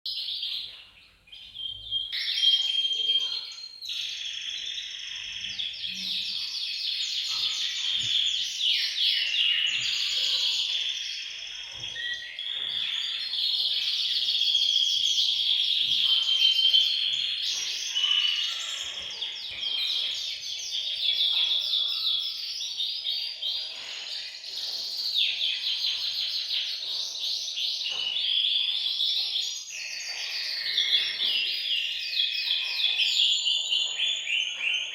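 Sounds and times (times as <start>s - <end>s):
canaries singing trills: 0.1s - 34.9s.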